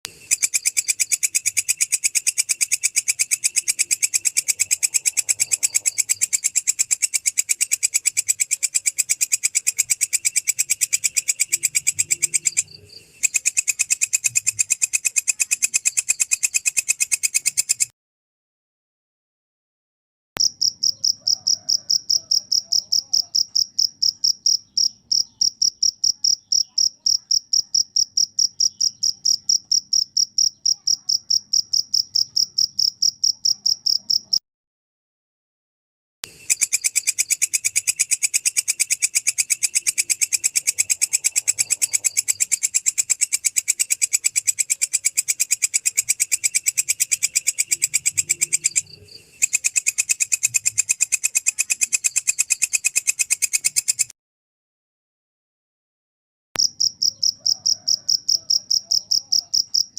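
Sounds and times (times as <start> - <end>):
cricket chirping: 0.1 - 17.9, 20.4 - 34.4, 36.3 - 54.1, 56.6 - 59.9
katydid pulsing call: 36.3 - 54.1.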